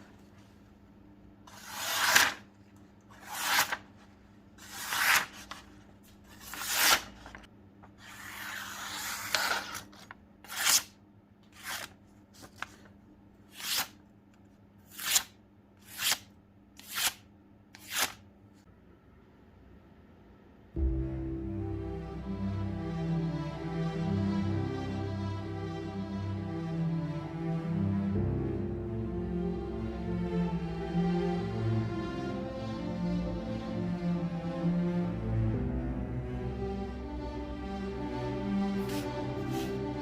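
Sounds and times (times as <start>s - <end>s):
cleaver blade scraping strokes: 1.5s - 2.4s.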